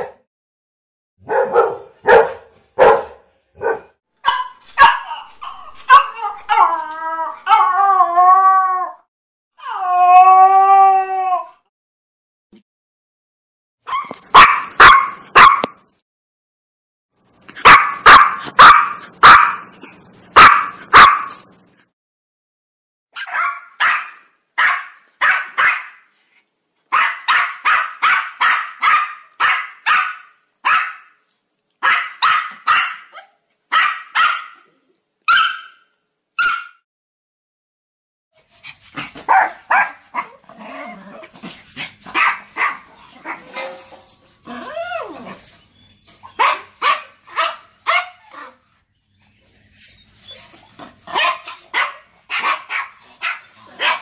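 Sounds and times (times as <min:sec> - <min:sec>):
dog barking: 0:00.0 - 0:00.2, 0:01.2 - 0:05.1, 0:14.3 - 0:15.8, 0:17.6 - 0:19.7, 0:20.4 - 0:21.4, 0:23.2 - 0:26.0, 0:26.9 - 0:31.2, 0:31.8 - 0:34.7, 0:35.3 - 0:35.8, 0:36.4 - 0:36.8, 0:39.3 - 0:40.4, 0:42.1 - 0:43.6, 0:46.3 - 0:48.5, 0:51.1 - 0:54.0.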